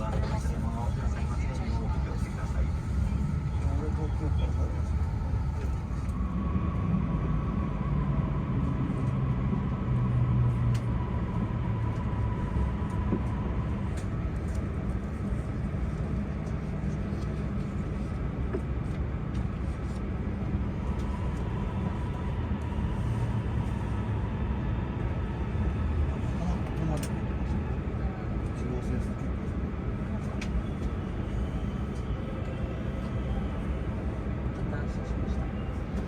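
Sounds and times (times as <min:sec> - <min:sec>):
train rumbling inside cabin: 0:00.0 - 0:36.0.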